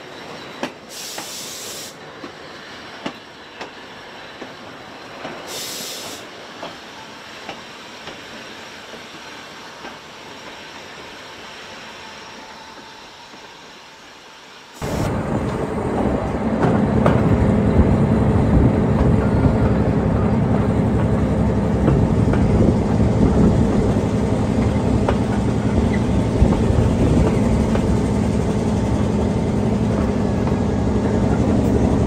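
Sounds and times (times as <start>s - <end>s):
railway carriage rolling: 0.0s - 32.0s
short hiss: 0.9s - 2.0s, 5.4s - 6.4s.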